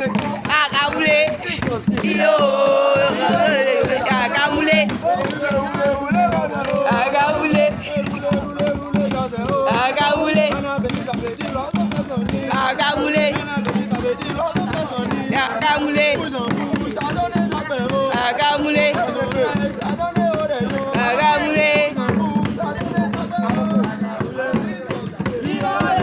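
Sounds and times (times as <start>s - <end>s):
fast percussion: 0.0s - 26.0s
group singing: 0.0s - 26.0s.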